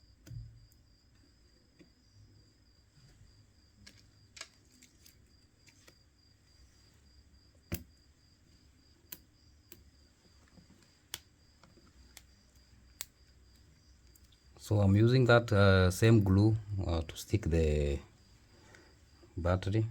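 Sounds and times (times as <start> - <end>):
small clicks and taps of tools: 0.2 - 2.0, 3.8 - 6.0, 7.7 - 8.0, 9.1 - 14.4.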